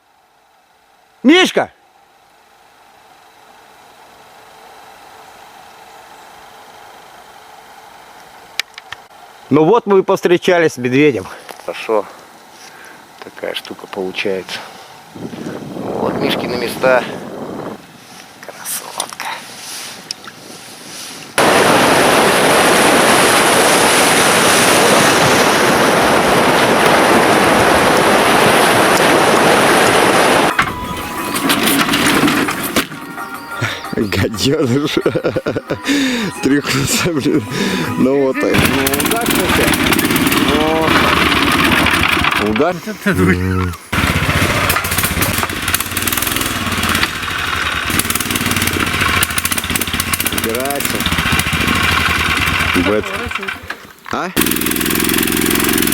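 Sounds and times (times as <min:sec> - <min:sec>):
loud steady rushing noise: 0:21.4 - 0:34.3
outboard boat motor running: 0:21.8 - 0:55.9.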